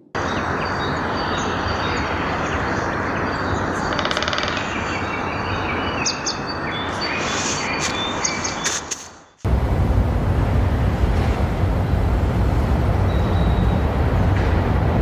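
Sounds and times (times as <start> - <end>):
small birds chirping: 0.2 - 9.4
steady rushing noise: 9.5 - 15.0.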